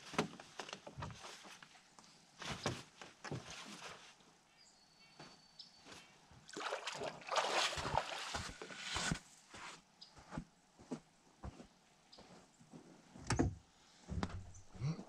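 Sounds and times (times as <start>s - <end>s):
water sloshing around boat: 6.4s - 9.1s
water splashing rush: 6.6s - 8.7s.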